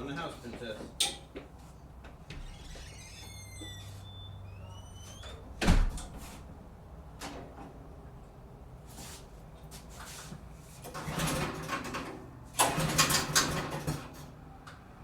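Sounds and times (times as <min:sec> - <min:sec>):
high squeaky chirps: 0:02.5 - 0:05.3
door shutting thump: 0:05.6 - 0:06.2.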